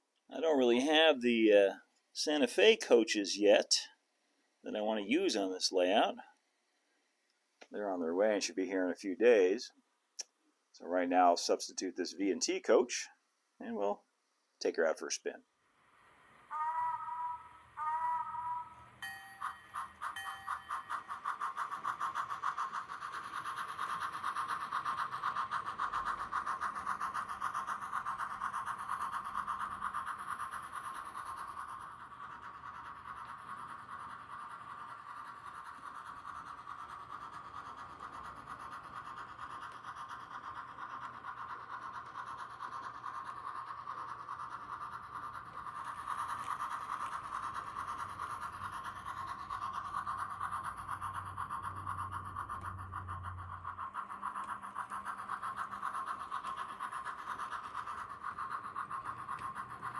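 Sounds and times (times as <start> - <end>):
steam chuffs through small speaker: 14.7 - 59.9.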